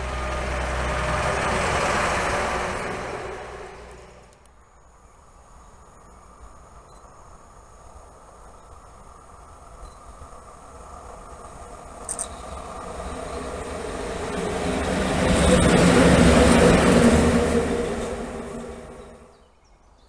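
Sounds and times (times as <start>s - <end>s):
locomotive wheels on rails: 0.0s - 4.5s, 8.9s - 19.4s.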